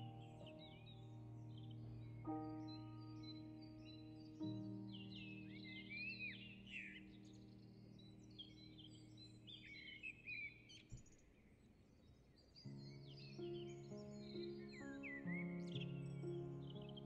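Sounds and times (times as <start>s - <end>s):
soft held music chord: 0.0s - 10.6s, 12.7s - 17.0s
birds chirping: 0.0s - 17.0s.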